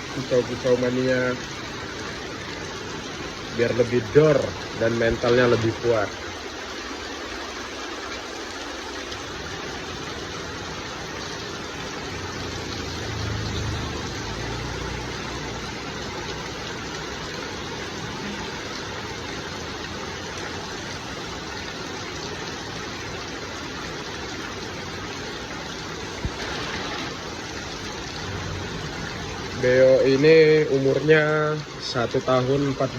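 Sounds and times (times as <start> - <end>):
water spraying in fine shower: 26.2 - 28.6.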